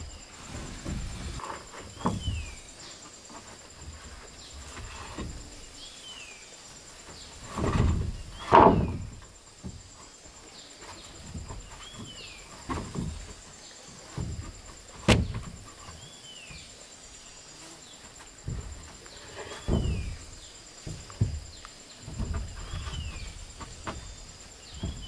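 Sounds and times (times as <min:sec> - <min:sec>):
knocks and thumps of handling wood: 0:00.0 - 0:16.8, 0:17.9 - 0:25.0
high insect trill: 0:00.0 - 0:25.0
sharp wood crack: 0:07.4 - 0:09.3, 0:14.1 - 0:15.7.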